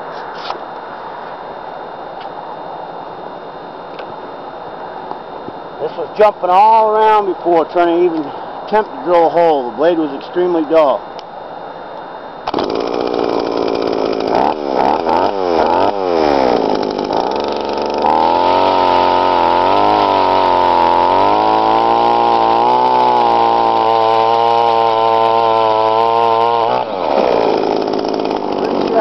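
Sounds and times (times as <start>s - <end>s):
auger cutting through ice: 12.5s - 29.0s
ice auger engine revving: 12.5s - 29.0s.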